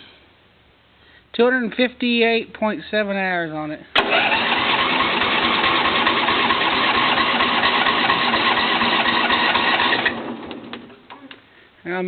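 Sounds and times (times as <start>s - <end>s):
engine cranking on starter: 3.9s - 11.2s.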